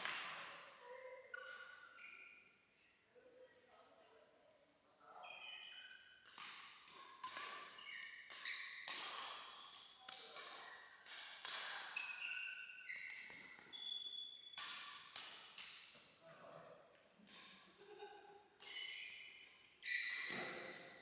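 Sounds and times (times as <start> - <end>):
racket hitting shuttlecock: 6.3 - 9.6, 10.4 - 12.0, 14.6 - 15.8
shoes squeaking on court: 7.7 - 8.8, 11.9 - 14.6.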